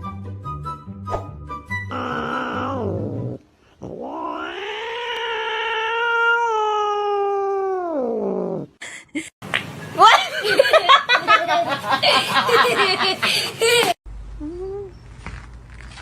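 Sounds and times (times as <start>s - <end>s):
cat yowling: 1.9s - 3.0s, 3.8s - 8.5s.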